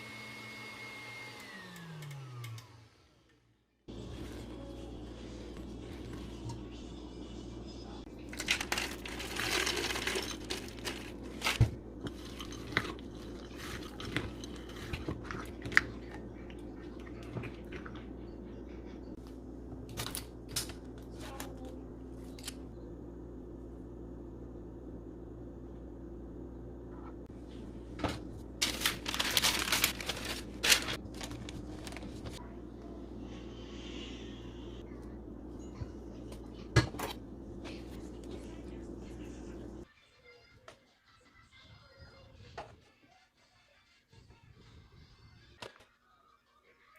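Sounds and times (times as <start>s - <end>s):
steady low hum: 3.9s - 39.9s
crinkling: 8.2s - 16.0s, 28.6s - 32.4s
kitchen utensils clicking and clinking: 8.2s - 16.2s.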